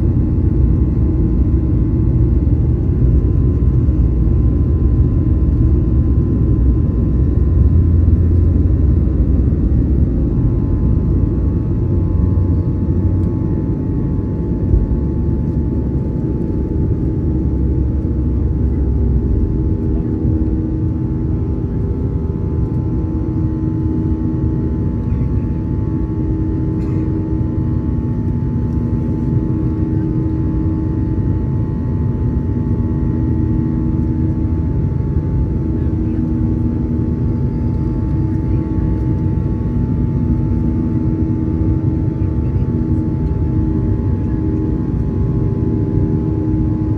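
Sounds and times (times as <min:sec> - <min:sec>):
jet engines rumbling in cabin: 0:00.0 - 0:46.9.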